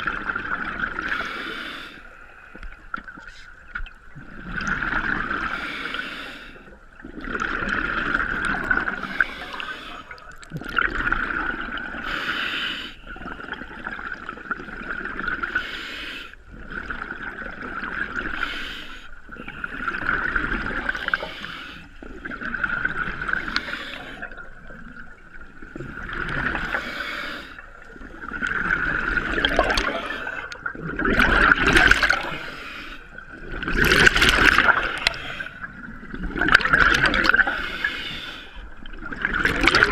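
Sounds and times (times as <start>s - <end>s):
regulator inhale hiss: 1.1s - 2.4s, 5.4s - 6.8s, 8.9s - 10.2s, 12.0s - 13.1s, 15.5s - 16.4s, 18.3s - 19.6s, 21.0s - 22.0s, 23.4s - 24.3s, 26.6s - 27.8s, 32.3s - 33.2s, 37.4s - 38.7s
exhale bubbling: 4.2s - 15.7s, 16.5s - 39.9s.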